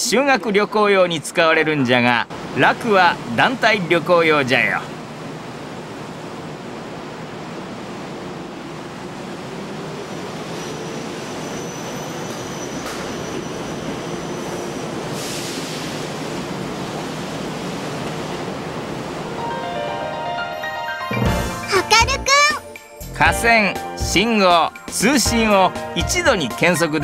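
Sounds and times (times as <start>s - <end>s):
electric train pulling out: 6.7s - 21.6s
burst of hiss: 15.1s - 16.1s.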